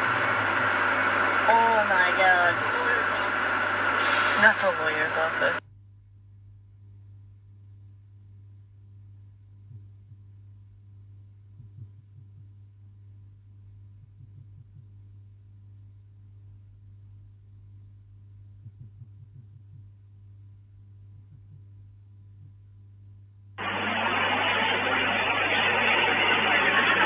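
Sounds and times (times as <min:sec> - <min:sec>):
steady low hum: 0:00.0 - 0:05.6, 0:23.6 - 0:27.0.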